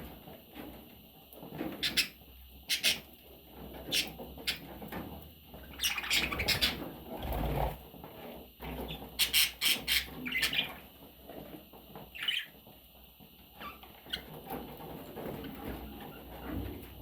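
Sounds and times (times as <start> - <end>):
budgerigar squawking and chirping: 5.8 - 6.8.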